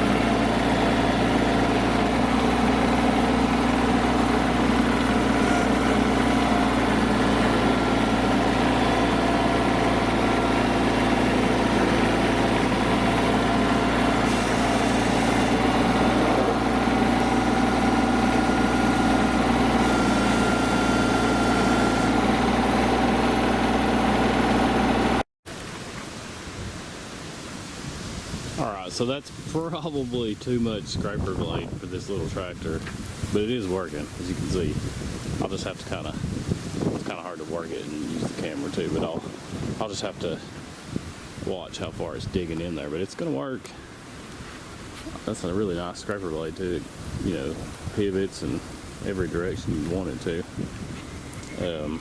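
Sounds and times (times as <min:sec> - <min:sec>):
scraper blade through dirt: 0:00.0 - 0:23.8
tractor diesel engine running: 0:00.0 - 0:25.2, 0:29.9 - 0:52.0.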